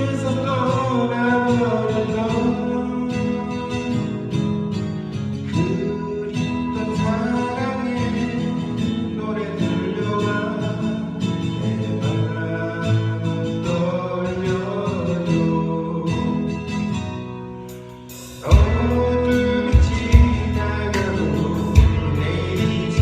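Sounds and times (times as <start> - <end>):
guitar accompaniment: 0.0 - 23.0
person singing long notes: 18.4 - 23.0.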